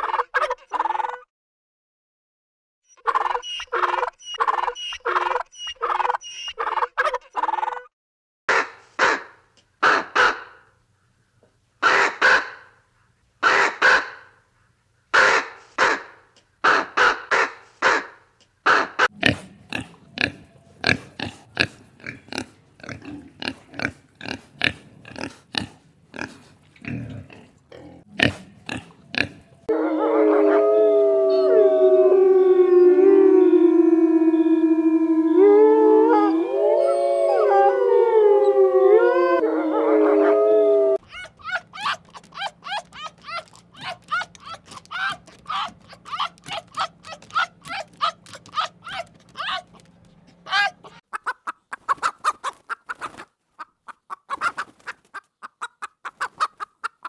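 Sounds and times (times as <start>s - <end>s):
harsh animal calls: 18.7s - 51.2s
held gliding animal tones: 29.4s - 51.0s.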